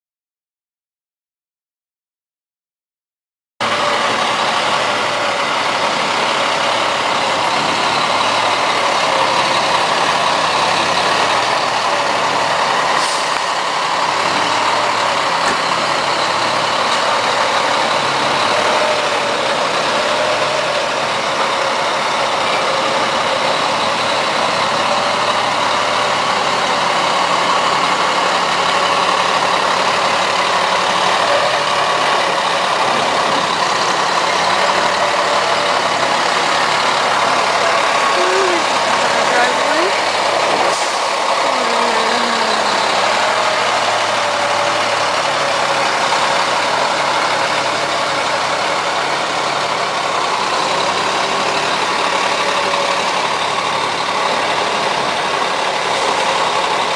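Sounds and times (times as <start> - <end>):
truck engine running: 3.6 - 56.9.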